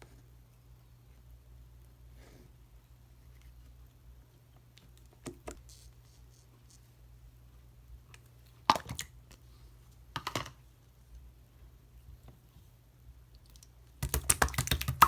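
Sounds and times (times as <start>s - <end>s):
faint low hum: 0.0s - 15.0s
slime squished by hand: 14.0s - 15.0s.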